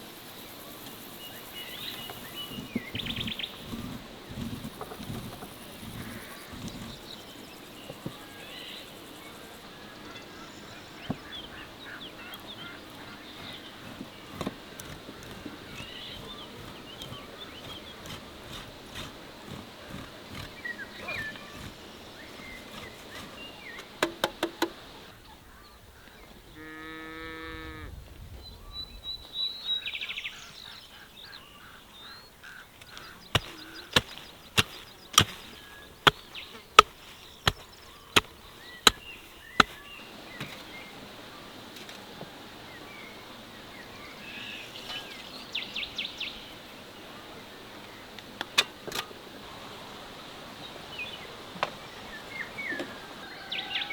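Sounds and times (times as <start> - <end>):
animal call: 11.9 - 23.3
bird chirps: 28.5 - 40.9
sharp knocks: 39.6 - 39.8.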